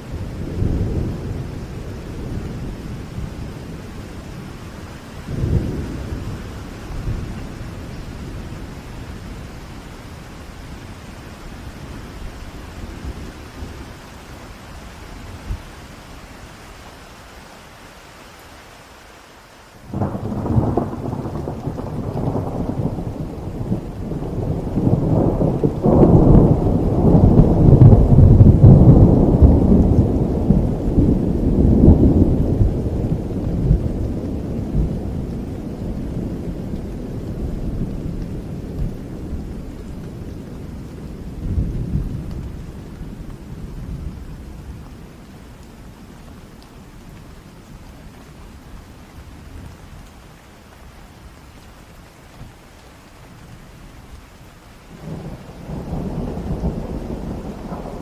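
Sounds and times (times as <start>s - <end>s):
steady rain: 0.0s - 58.0s
thunder rolling: 19.9s - 42.3s, 55.0s - 58.0s.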